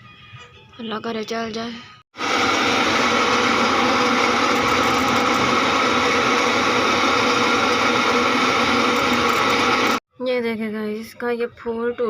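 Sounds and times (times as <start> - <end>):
washing machine motor whirring: 2.2 - 10.0.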